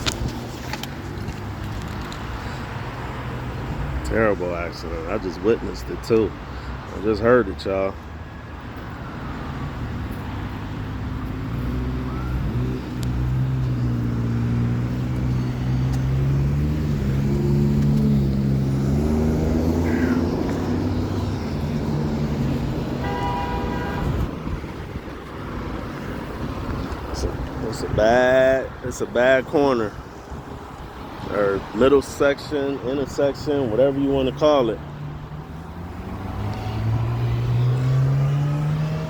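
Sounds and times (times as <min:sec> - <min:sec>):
short horn toot: 0:23.0 - 0:24.2.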